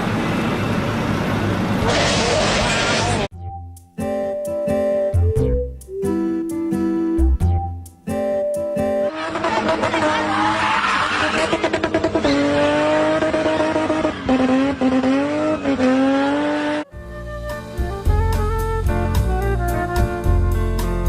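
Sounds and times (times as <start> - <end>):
music with steady beat and bass: 3.3 - 9.1, 17.0 - 21.0
tyres squealing: 9.1 - 14.4
car engine running: 9.1 - 16.8.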